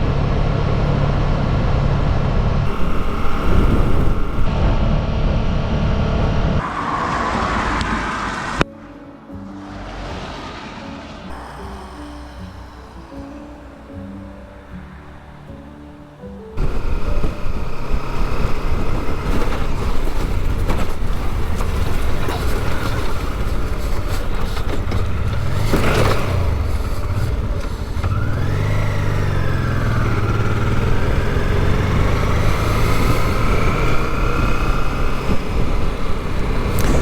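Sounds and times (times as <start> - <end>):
motorcycle engine running: 0.0 - 6.1, 16.6 - 37.0
riding wind noise: 0.0 - 8.8, 9.4 - 37.0
loud burst of noise: 2.5 - 8.6.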